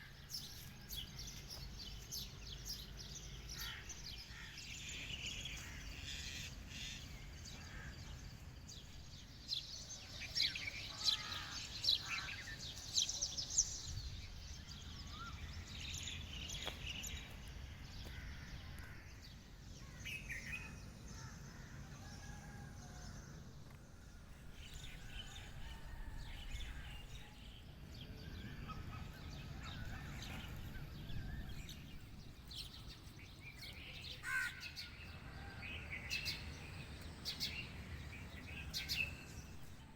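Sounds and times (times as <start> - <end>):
birds chirping and calling: 33.6 - 35.0.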